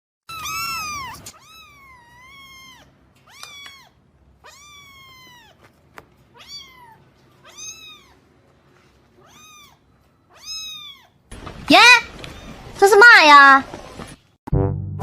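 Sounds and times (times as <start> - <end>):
cat meowing: 0.3 - 5.6, 6.3 - 8.3, 9.2 - 11.2.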